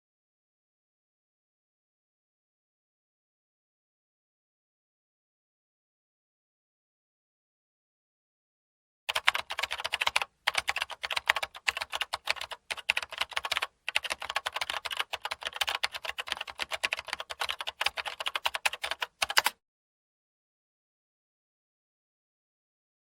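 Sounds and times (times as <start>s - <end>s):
rapid irregular clicking: 9.1s - 19.6s.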